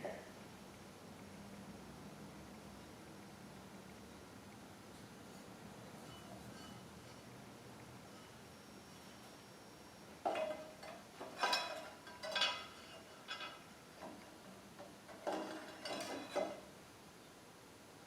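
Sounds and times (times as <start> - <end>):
metal parts clinking: 10.3 - 13.6, 15.2 - 16.6.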